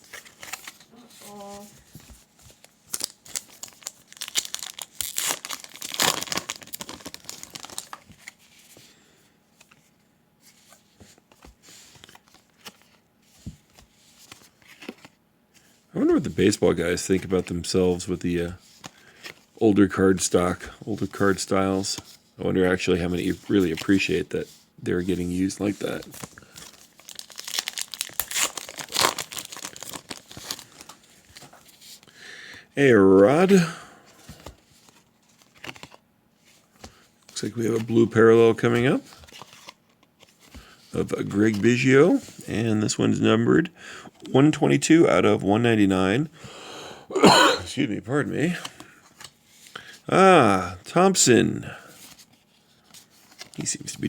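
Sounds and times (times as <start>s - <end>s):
cards crinkling and ticking: 0.1s - 8.8s, 25.4s - 32.1s, 34.3s - 36.0s
wrapper tearing and crackling: 2.9s - 8.0s, 26.2s - 30.9s.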